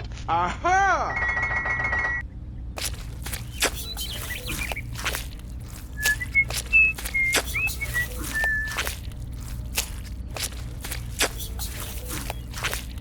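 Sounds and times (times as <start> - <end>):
high whistled chirps: 3.2 - 12.9.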